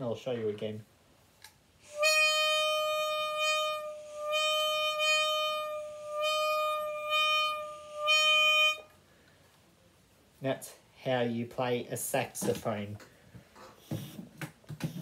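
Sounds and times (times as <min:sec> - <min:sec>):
toy saxophone buzzy note: 0:01.8 - 0:09.0.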